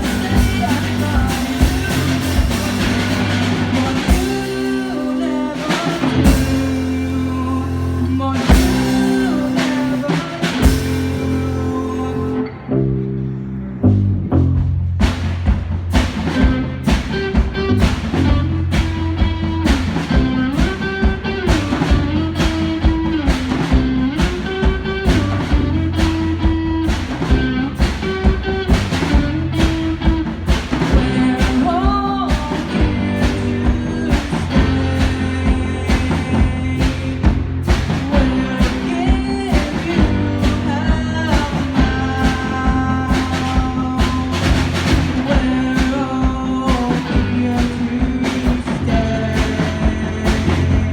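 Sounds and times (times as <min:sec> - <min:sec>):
drum kit beat: 0:00.0 - 0:12.4, 0:14.4 - 0:50.9
rock band playing live: 0:00.0 - 0:50.9.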